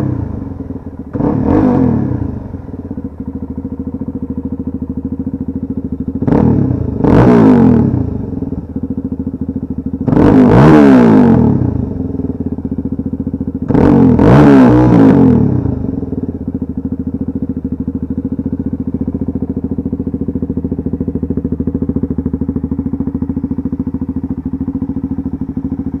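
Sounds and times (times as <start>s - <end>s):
engine revving: 0.0s - 0.5s, 1.1s - 2.6s, 6.2s - 8.3s, 10.0s - 12.1s, 13.6s - 16.1s
dirt bike engine idling: 0.0s - 26.0s.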